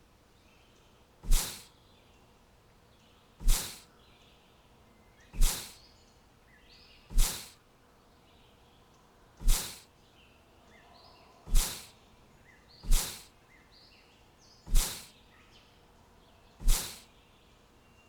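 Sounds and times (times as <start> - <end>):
short sharp whooshing bursts: 1.2 - 1.7, 3.4 - 3.9, 5.4 - 5.8, 7.1 - 7.6, 9.4 - 9.8, 11.5 - 11.9, 12.8 - 13.3, 14.7 - 15.1, 16.6 - 17.0.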